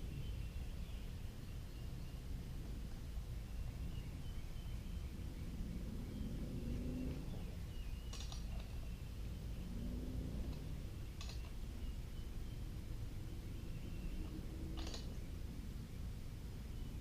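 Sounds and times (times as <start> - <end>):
steady low rumble: 0.0 - 17.0
small parts clicking: 11.2 - 11.5.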